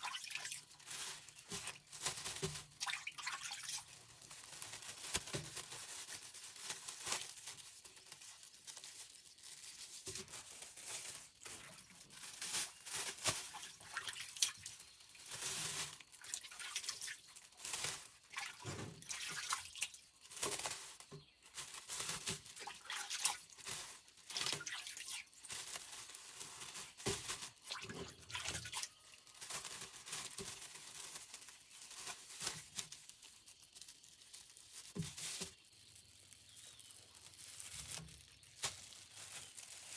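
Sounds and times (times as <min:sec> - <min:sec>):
water splashing and dripping: 0:00.0 - 0:04.0, 0:11.4 - 0:20.7, 0:22.0 - 0:25.8, 0:26.4 - 0:31.1
clicks and rustles from handling: 0:03.6 - 0:39.9.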